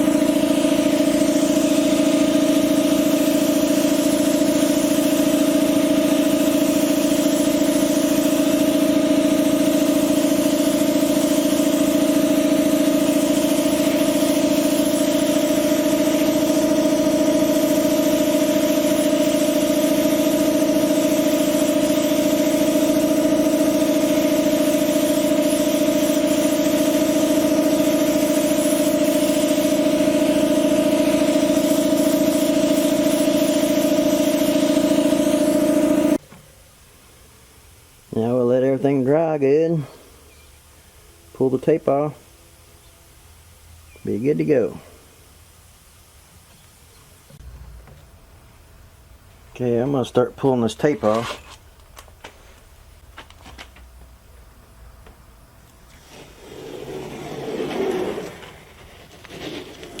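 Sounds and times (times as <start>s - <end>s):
machine hum: 0.0s - 38.2s, 45.0s - 49.6s.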